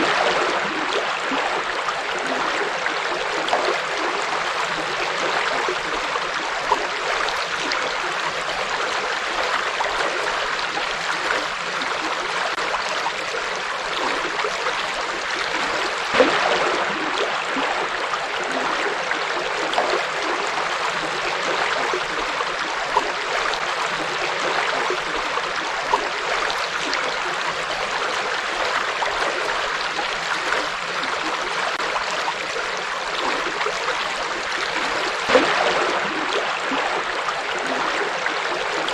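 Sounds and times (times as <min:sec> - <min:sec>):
water splashes and gurgles: 0:00.0 - 0:38.9.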